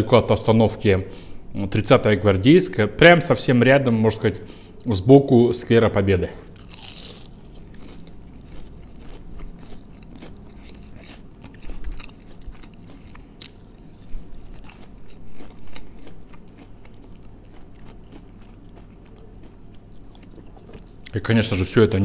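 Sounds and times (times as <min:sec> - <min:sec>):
man chewing crunchy food: 0:06.5 - 0:22.0.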